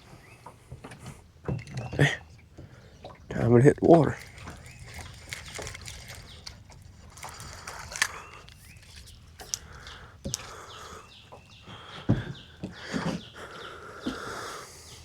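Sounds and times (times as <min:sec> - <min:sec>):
birds chirping: 0:00.0 - 0:15.0
sharp clicks: 0:04.2 - 0:10.5.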